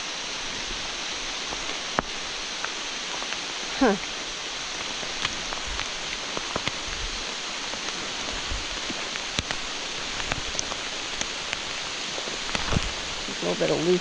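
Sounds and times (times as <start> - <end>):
rain hissing: 0.0 - 14.0
light taps and drips: 7.6 - 13.1.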